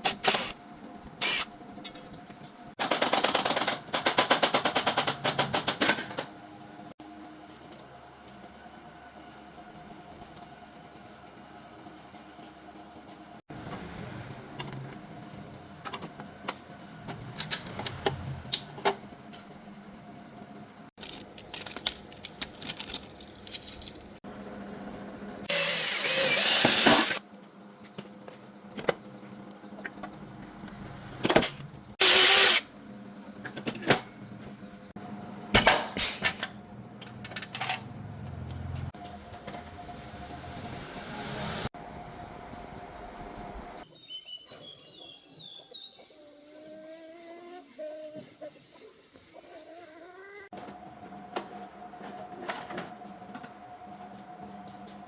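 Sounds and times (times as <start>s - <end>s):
power tool bursts: 0.0s - 0.6s, 1.2s - 1.5s, 25.5s - 27.2s, 32.0s - 32.7s.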